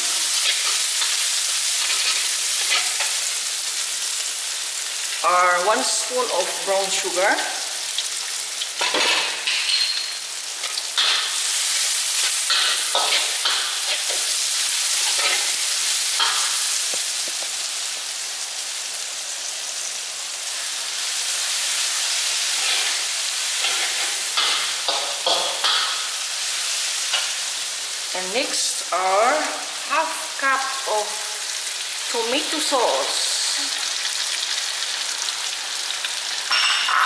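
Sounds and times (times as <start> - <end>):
food sizzling in hot oil: 0.0 - 37.0
metal spatula scraping a wok: 0.2 - 3.3, 23.6 - 25.8.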